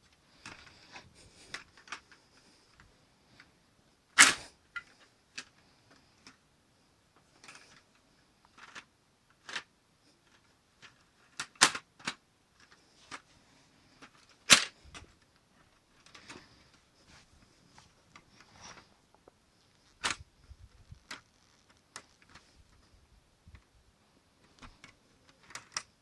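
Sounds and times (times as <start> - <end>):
plastic toy gun snaps: 4.2 - 4.4, 14.5 - 14.7.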